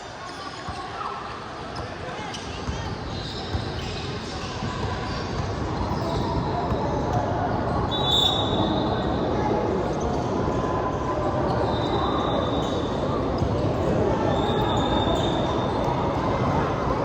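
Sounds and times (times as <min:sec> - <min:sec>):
crowd chatter: 0:00.0 - 0:17.0
basketball bouncing on court: 0:01.8 - 0:07.2
shoe squeaks: 0:02.2 - 0:06.8, 0:07.6 - 0:09.0, 0:11.3 - 0:15.8.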